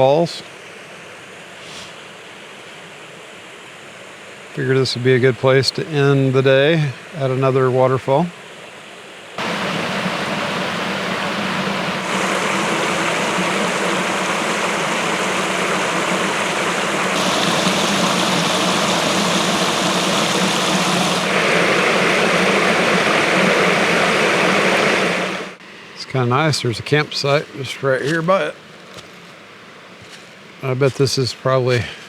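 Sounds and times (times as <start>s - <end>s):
waterfall rushing: 9.4s - 25.6s.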